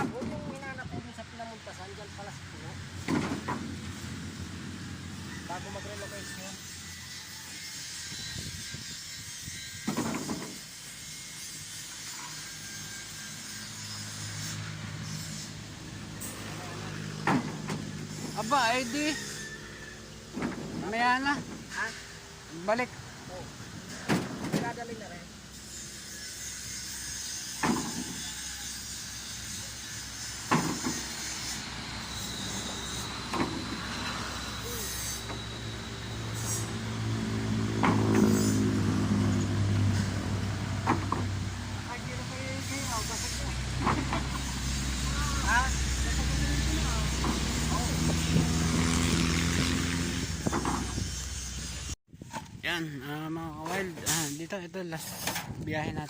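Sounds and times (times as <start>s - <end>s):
road and wind hiss: 0.0s - 56.0s
truck engine hum: 1.2s - 6.2s, 14.6s - 25.6s, 29.0s - 52.0s.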